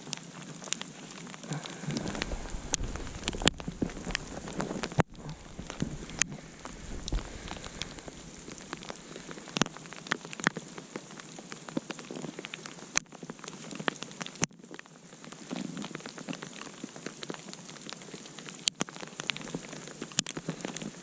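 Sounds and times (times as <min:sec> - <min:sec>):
wood campfire crackling: 0:00.0 - 0:21.0.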